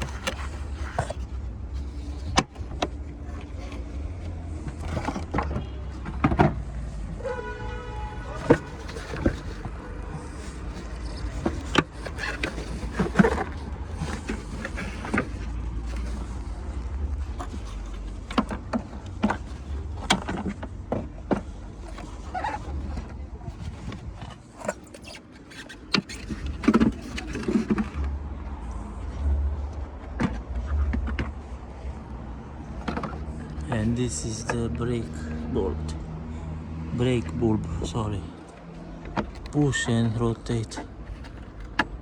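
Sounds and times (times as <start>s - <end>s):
plastic clicks and knocks: 0.0s - 6.7s.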